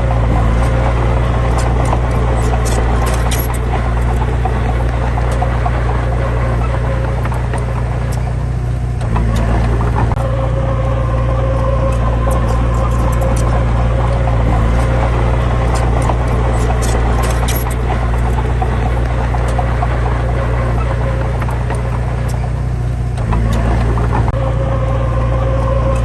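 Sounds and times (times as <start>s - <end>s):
heavy diesel engine droning: 0.0s - 26.0s
light clicks and rattles: 0.2s - 10.2s, 12.0s - 24.4s.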